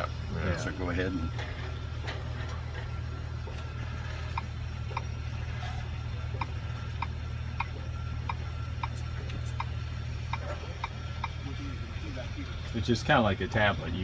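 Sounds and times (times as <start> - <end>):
low hum: 0.0 - 14.0
regular ticking: 3.4 - 5.4, 6.0 - 11.7.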